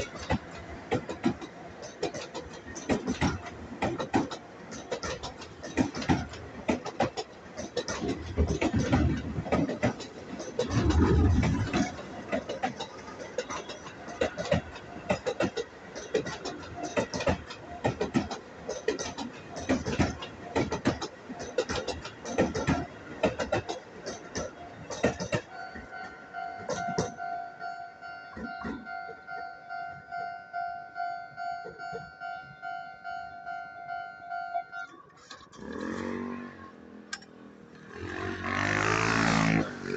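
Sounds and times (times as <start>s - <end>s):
train wheels clanking over rail joints: 0.0s - 27.3s, 28.3s - 29.3s, 34.8s - 39.9s
low train rumble: 0.0s - 39.9s
level crossing alarm two-note tone: 25.5s - 34.9s.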